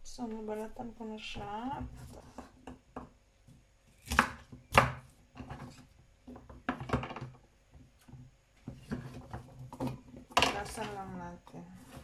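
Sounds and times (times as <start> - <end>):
knife chopping on cutting board: 4.0 - 5.8.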